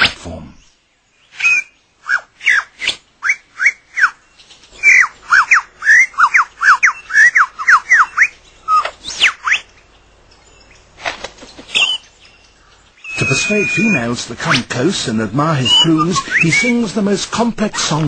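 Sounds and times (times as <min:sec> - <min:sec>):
lyrebird singing whistled notes: 0:00.6 - 0:10.9, 0:11.6 - 0:17.0.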